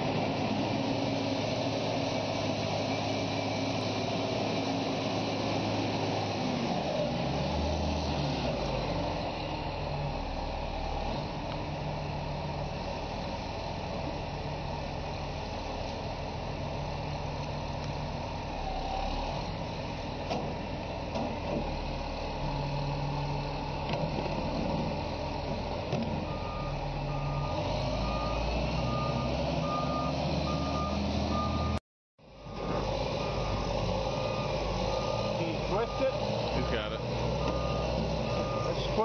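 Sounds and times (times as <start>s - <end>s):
diesel machine rumbling: 0.0s - 39.0s
reversing alarm beeping: 26.2s - 31.8s, 33.2s - 36.8s, 37.4s - 39.0s.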